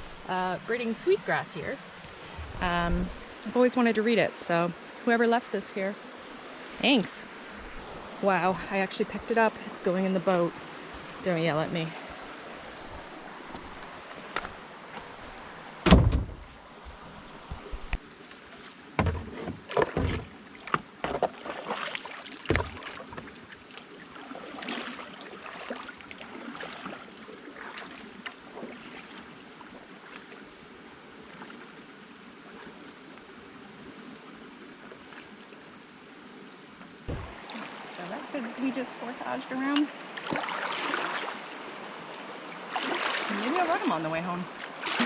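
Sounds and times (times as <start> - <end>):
paddling splashes: 15.8 - 33.0, 37.0 - 45.0
kayak and paddle knocking: 19.0 - 23.5, 37.1 - 38.0.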